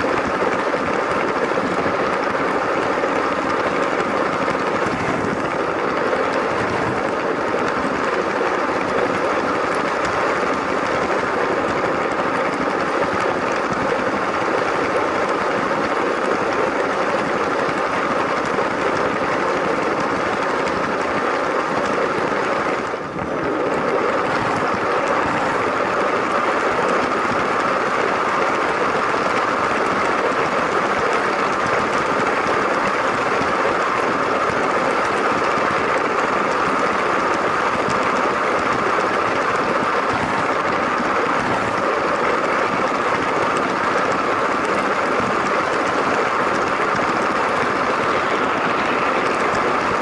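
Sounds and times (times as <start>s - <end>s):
wheels on plastic track: 0.0s - 50.0s.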